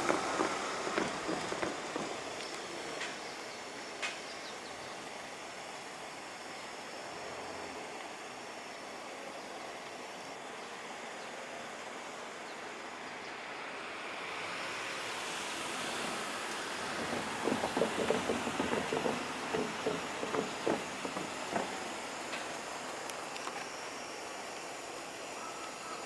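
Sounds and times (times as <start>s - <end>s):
wheels clattering over rail joints: 0.0s - 3.3s, 16.0s - 22.9s
train rumble: 0.0s - 5.8s, 13.7s - 25.9s.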